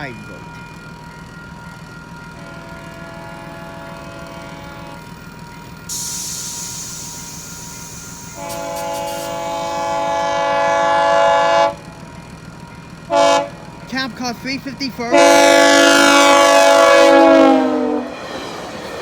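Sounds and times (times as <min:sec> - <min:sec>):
train air horn blasts: 0:02.4 - 0:05.0, 0:08.2 - 0:11.8, 0:13.1 - 0:13.6, 0:15.1 - 0:18.1
burst of hiss: 0:05.9 - 0:10.3.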